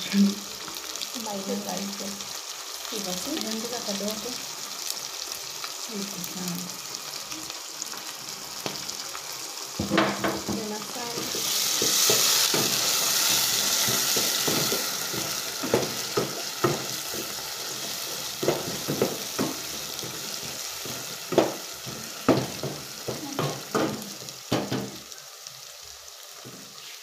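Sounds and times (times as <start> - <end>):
food sizzling in a pot: 0.0 - 27.0
spoon stirring and knocking pot: 11.2 - 13.0, 13.7 - 25.0.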